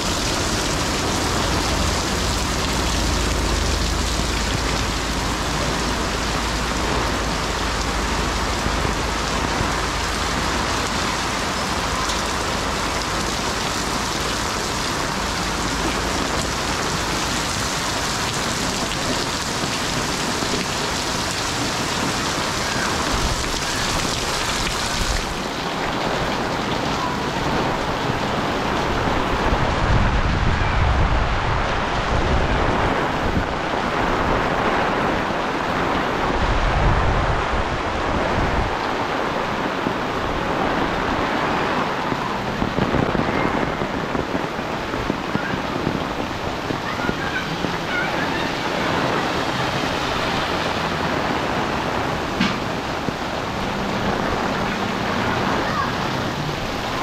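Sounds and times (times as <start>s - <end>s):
rain pattering on umbrella: 0.0s - 30.0s, 31.8s - 57.0s
heavy rain on concrete: 0.0s - 57.0s
low rumbling: 0.0s - 57.0s.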